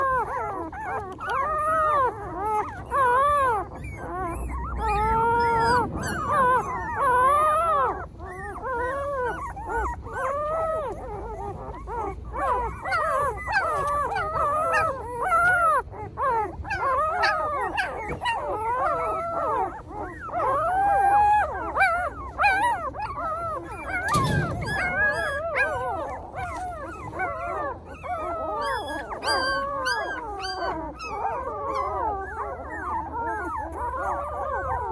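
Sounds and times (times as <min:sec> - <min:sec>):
puppies whining and howling: 0:00.0 - 0:34.9
thump: 0:24.0 - 0:26.8.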